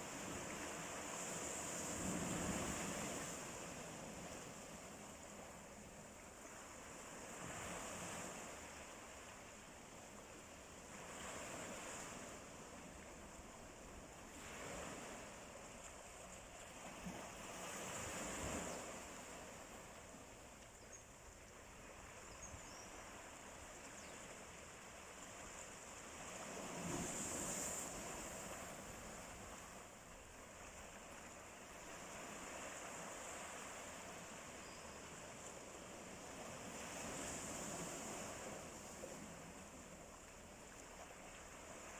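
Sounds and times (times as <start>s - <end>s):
sea waves washing in: 0.0s - 20.6s, 21.4s - 41.9s.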